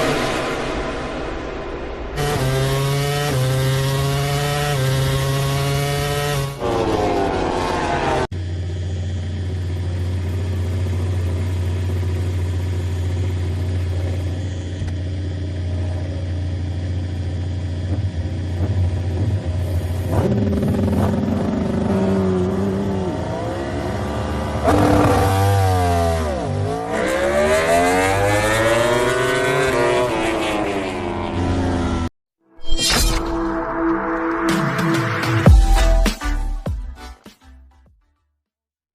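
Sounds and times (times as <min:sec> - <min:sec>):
race motorcycle engines revving: 0:02.2 - 0:32.1.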